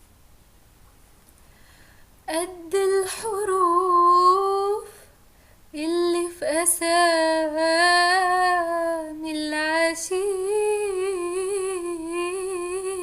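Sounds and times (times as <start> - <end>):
person humming a melody: 7.6 - 13.0.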